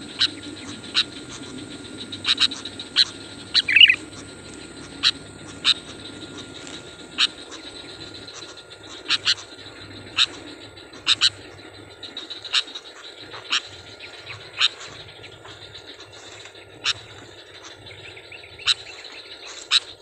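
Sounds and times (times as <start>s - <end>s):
bird giving sharp call notes: 0.0s - 7.8s.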